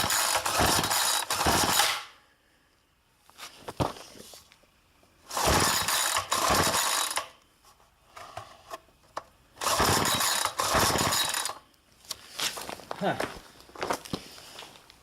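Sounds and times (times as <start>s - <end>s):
trimmer engine turning over: 0.0s - 2.0s, 5.3s - 7.3s, 9.6s - 11.6s
recoil starter pulls: 0.0s - 2.1s, 5.3s - 7.3s, 9.6s - 11.6s.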